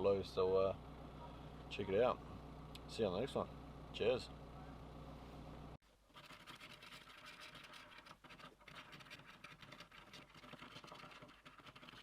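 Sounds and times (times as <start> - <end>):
scratching and rustling handling: 6.1 - 12.0.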